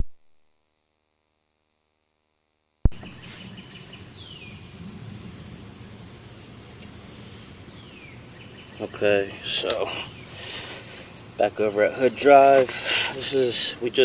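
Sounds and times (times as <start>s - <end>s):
outdoor background noise: 0.0s - 14.0s
birds chirping: 2.9s - 14.0s.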